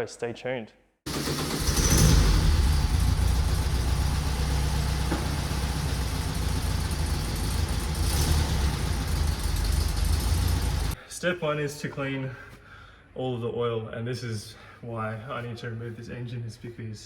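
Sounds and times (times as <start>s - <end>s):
car engine rumbling: 1.1s - 11.0s.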